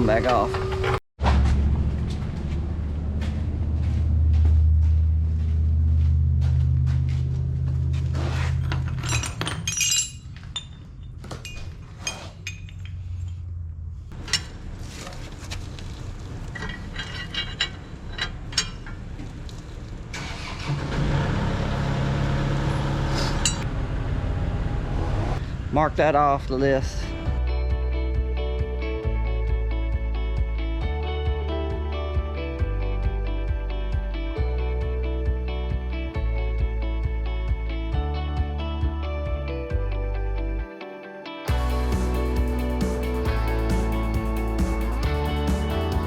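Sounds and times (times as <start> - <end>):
metallic knocks and clinks: 8.6 - 13.5, 16.5 - 19.2.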